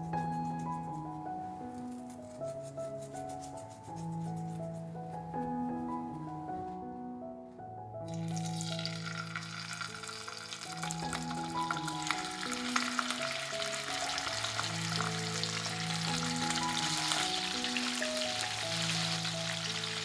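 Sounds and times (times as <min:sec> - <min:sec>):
chicken sizzling in hot oil: 0:08.1 - 0:20.0.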